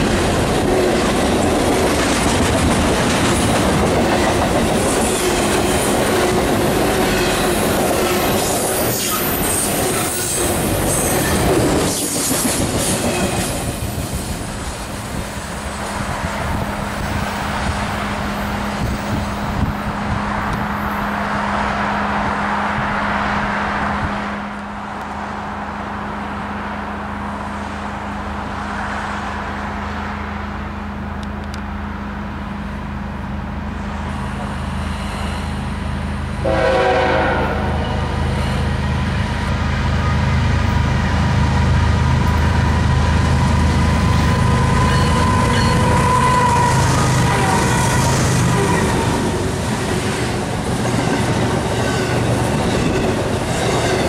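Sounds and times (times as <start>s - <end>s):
train wheels ringing and squealing: 0.0s - 15.9s, 34.0s - 36.9s, 37.5s - 40.9s, 42.2s - 54.0s
train horn: 36.4s - 38.4s, 43.9s - 49.3s.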